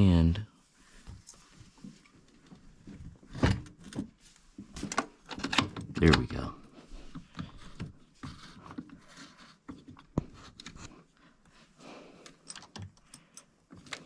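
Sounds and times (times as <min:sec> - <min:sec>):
clicks taps and scrapes of hand work: 0:07.1 - 0:11.6.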